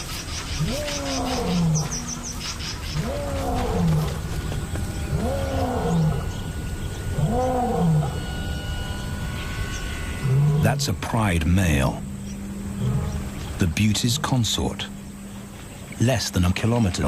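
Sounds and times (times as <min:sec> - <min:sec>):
lion roaring: 0:00.5 - 0:08.3, 0:12.7 - 0:15.0.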